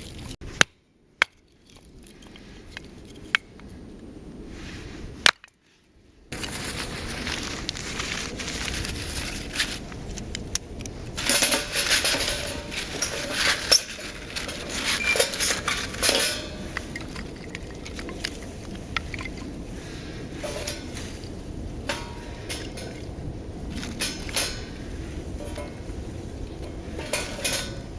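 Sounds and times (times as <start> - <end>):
metal clinking and clattering: 11.2 - 19.4, 20.4 - 21.0, 23.7 - 24.8, 26.6 - 27.9.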